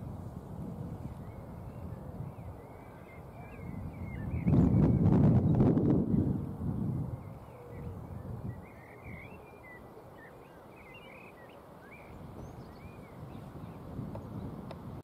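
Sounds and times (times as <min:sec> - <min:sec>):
wind rumble on microphone: 0:00.0 - 0:09.8, 0:11.9 - 0:15.0
small birds chirping: 0:07.1 - 0:14.6.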